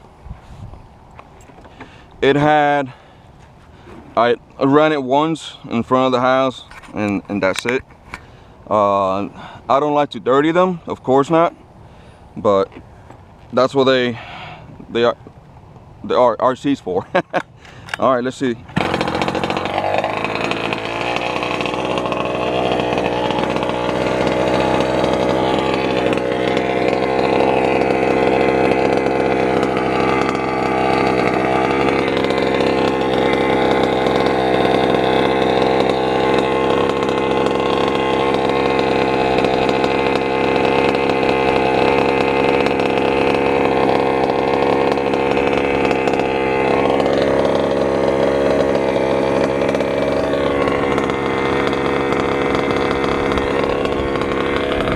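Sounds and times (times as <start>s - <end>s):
small two-stroke engine running: 3.8s - 12.9s, 16.9s - 54.9s.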